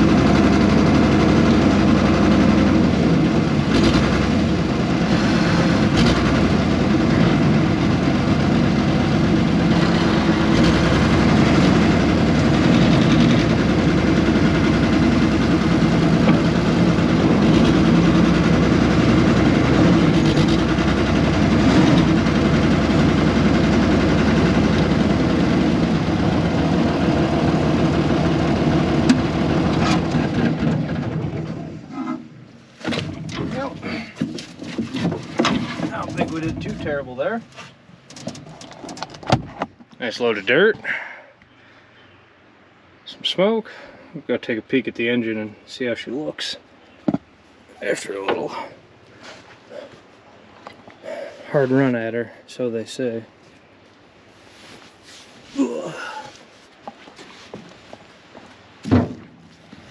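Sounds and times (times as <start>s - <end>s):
excavator diesel engine running: 0.0s - 34.3s
short knocks: 58.8s - 59.4s.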